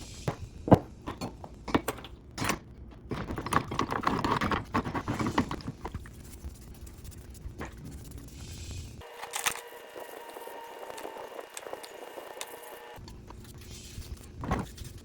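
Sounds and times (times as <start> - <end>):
hard objects knocking: 0.3 - 6.0.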